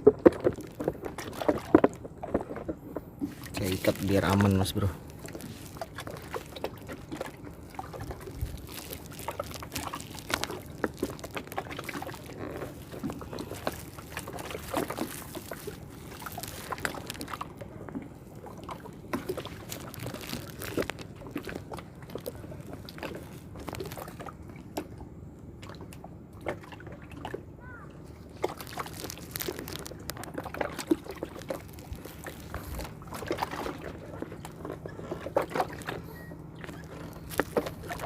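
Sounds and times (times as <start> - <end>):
small splashes and clicks: 0.0 - 25.0, 25.6 - 27.4, 28.2 - 38.0
water sloshing and trickling: 0.0 - 38.0.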